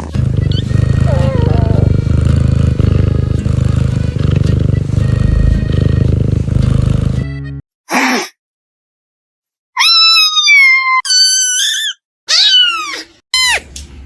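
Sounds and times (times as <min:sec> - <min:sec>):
kitten meowing: 0:00.6 - 0:01.9, 0:09.8 - 0:13.0.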